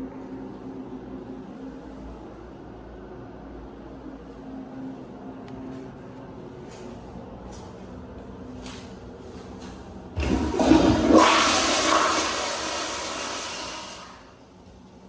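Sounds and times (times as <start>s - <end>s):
toilet flushing: 10.1s - 14.5s.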